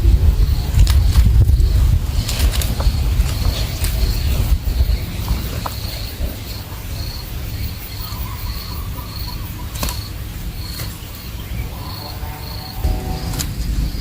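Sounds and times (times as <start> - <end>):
low rumble: 0.0 - 7.8, 12.7 - 14.0
insect chirping: 0.0 - 14.0.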